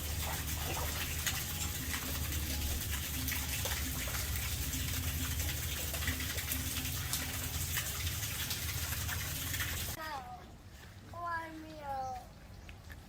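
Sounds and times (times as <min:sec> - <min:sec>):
running and splashing water: 0:00.0 - 0:10.0
small drips: 0:00.0 - 0:10.0.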